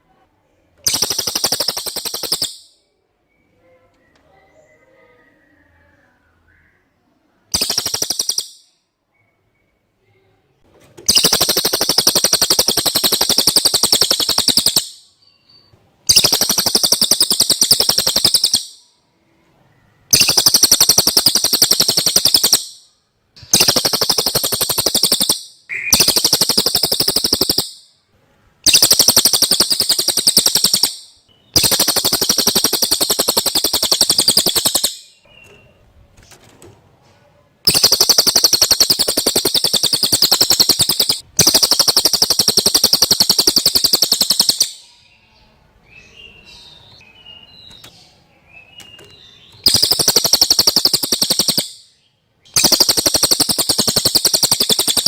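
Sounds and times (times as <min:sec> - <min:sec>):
rapid high-pitched trill: 0:00.9 - 0:02.7, 0:07.6 - 0:08.6, 0:11.1 - 0:15.0, 0:16.1 - 0:18.7, 0:20.2 - 0:22.8, 0:23.6 - 0:27.8, 0:28.7 - 0:35.0, 0:37.7 - 0:44.7, 0:49.7 - 0:51.7, 0:52.6 - 0:55.0.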